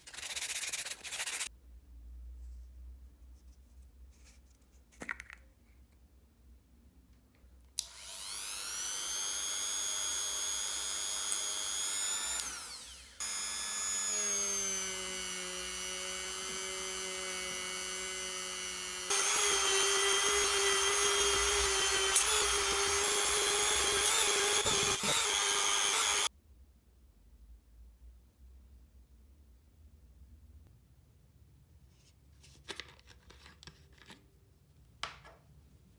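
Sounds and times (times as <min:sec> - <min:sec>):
power tool motor whining: 0:07.8 - 0:26.3.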